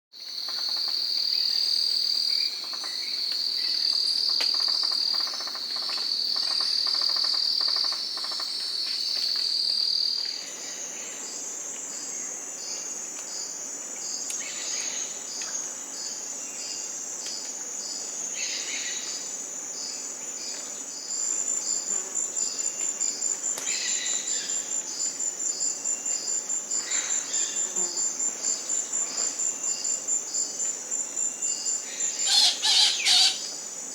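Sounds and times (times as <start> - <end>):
high continuous insect trill: 0.1 - 33.9
fast pulsing insect trill: 0.2 - 8.6, 20.9 - 33.9
insects buzzing trill: 0.2 - 33.9
pulsing insect chirp: 0.2 - 33.9.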